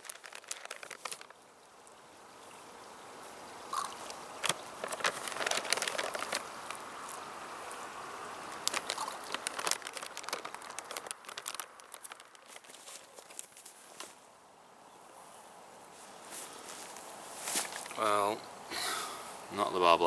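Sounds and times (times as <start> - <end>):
rustling and crackling: 0.0 - 1.4, 3.8 - 14.4, 15.9 - 18.1.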